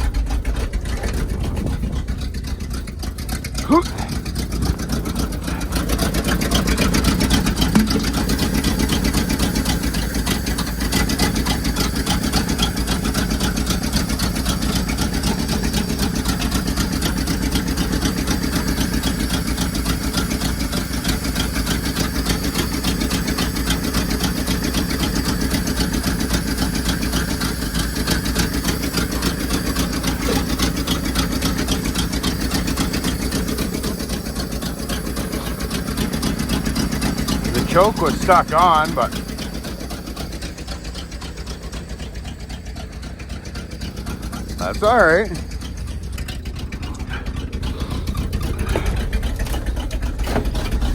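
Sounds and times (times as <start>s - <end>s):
engine idling: 0.0s - 50.9s.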